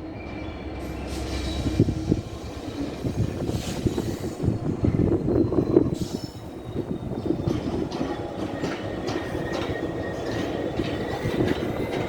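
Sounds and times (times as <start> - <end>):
diesel locomotive drone: 0.0 - 12.0
wheels clacking over rail joints: 7.2 - 12.0.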